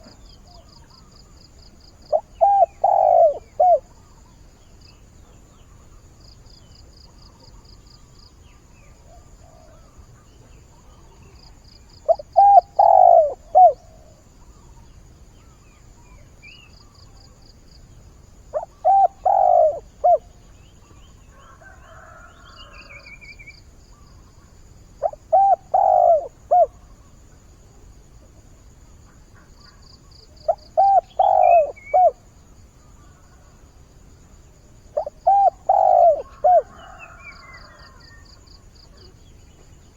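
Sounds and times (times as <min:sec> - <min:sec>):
dove cooing: 0:02.0 - 0:04.0, 0:12.0 - 0:14.3, 0:18.5 - 0:20.4, 0:25.0 - 0:27.1, 0:29.4 - 0:32.3, 0:34.8 - 0:39.1.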